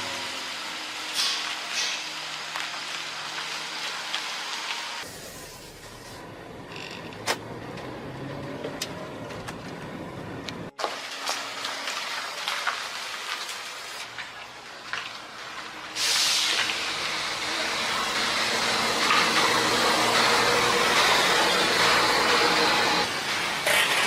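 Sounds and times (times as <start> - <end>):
compressed air hissing: 16.0 - 16.7.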